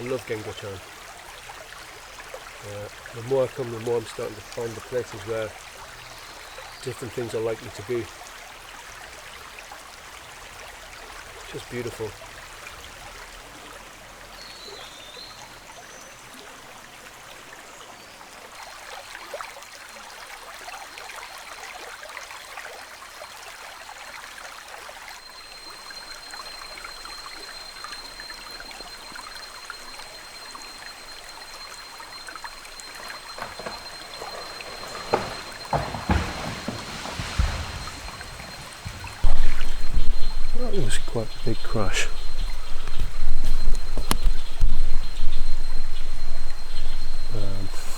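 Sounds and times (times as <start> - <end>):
river trickling over stones: 0.0 - 47.9
tree cracking and crashing: 25.6 - 47.9.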